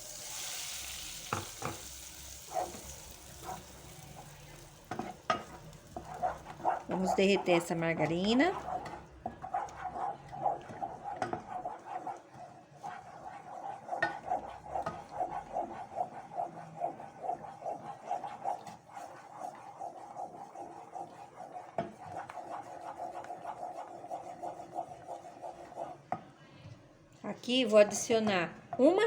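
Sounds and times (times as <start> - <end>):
spoon scraping a saucepan: 0.3 - 12.1.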